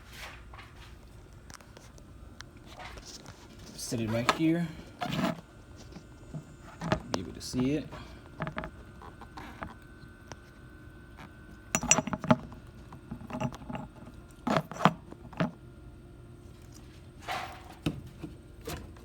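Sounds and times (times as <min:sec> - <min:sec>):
metal tools clinking: 0:11.8 - 0:12.4.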